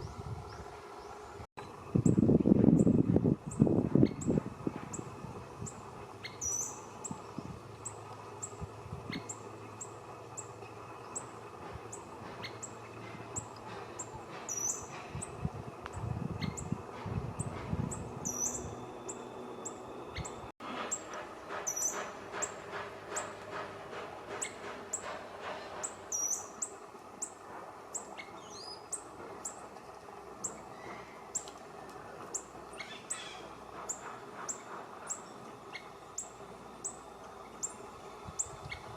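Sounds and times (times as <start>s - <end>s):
birds chirping: 2.8s - 16.8s, 17.4s - 21.0s.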